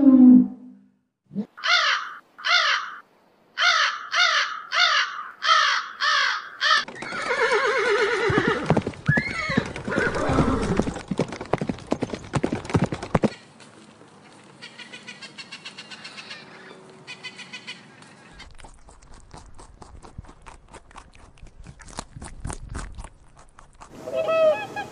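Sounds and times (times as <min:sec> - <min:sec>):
horse whinnying: 0:06.8 - 0:11.0
short arching animal calls: 0:23.9 - 0:24.9.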